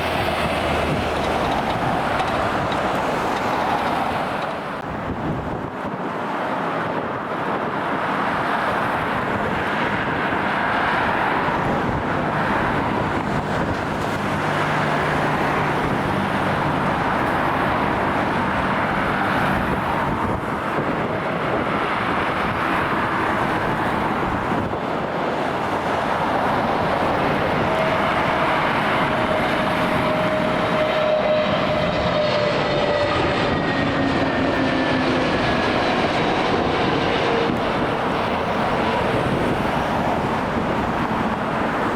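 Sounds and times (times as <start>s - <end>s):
jet engine roar: 0.0s - 41.9s
jet whine falling in pitch: 26.7s - 39.1s.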